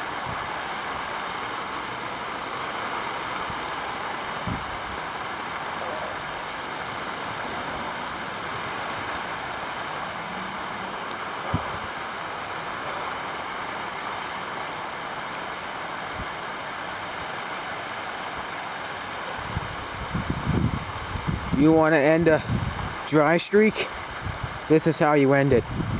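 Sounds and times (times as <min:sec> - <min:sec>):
heavy rain: 0:00.0 - 0:25.9
low thump: 0:11.4 - 0:11.9.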